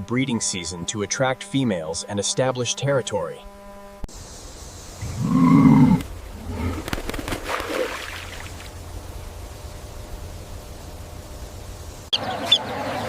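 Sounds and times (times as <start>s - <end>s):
animal deep call: 5.0s - 6.9s.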